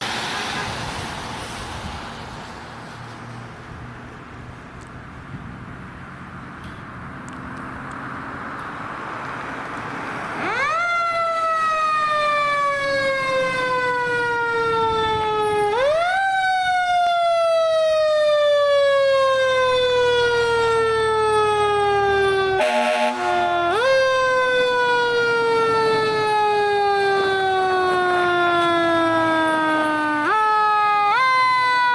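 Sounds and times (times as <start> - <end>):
truck rumble: 0.0 - 31.9
fire engine siren winding: 10.4 - 31.9.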